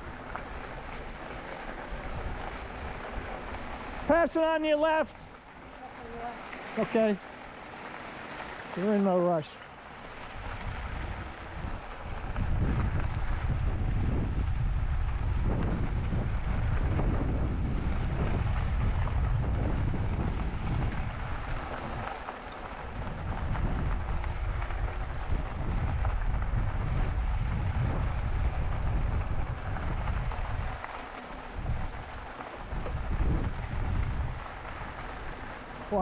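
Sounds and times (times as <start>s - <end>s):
wind buffeting microphone: 0.0s - 7.2s, 10.0s - 36.0s.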